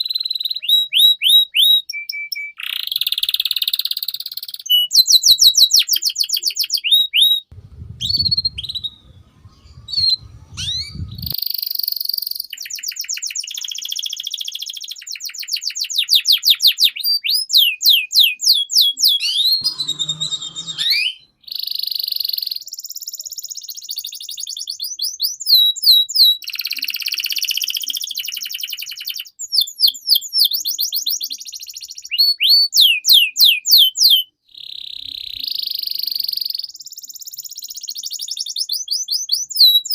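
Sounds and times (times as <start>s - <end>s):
canary singing: 0.0s - 22.6s, 23.7s - 36.6s
low rumble: 7.5s - 11.4s.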